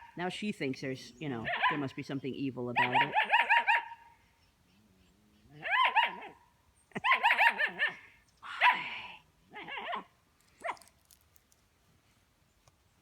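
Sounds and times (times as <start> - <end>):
puppy yipping: 1.5 - 1.8, 2.8 - 4.0, 5.5 - 8.9.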